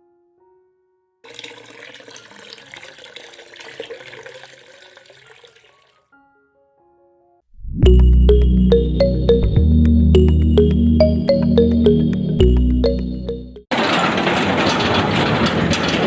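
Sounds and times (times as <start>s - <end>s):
soft piano-like music: 0.0s - 1.2s, 6.0s - 7.4s, 8.0s - 13.7s
water running and splashing: 1.3s - 6.0s.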